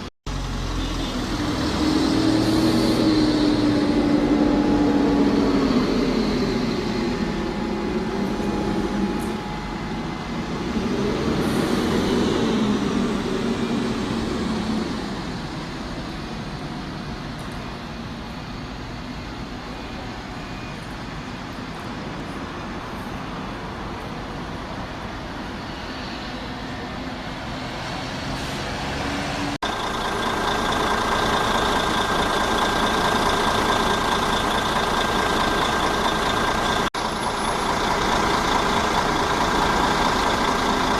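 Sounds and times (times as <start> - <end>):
diesel bus engine running: 0.0 - 40.9
vehicle running: 0.0 - 40.9
high-pitched warning tone: 2.4 - 14.3.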